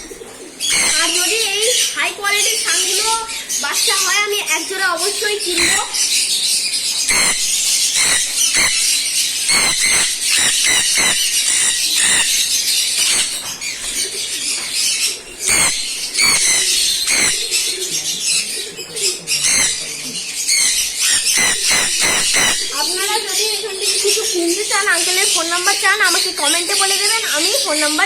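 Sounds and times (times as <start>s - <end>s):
small birds chirping: 0.0s - 28.0s
wings fluttering: 7.1s - 17.9s.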